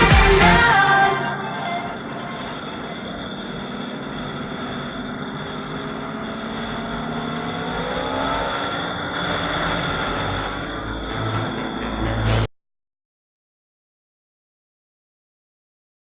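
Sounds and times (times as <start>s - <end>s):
engine whine rising in pitch: 0.0s - 12.5s
wind and road noise: 2.0s - 12.2s
motorcycle engines running: 2.0s - 12.4s.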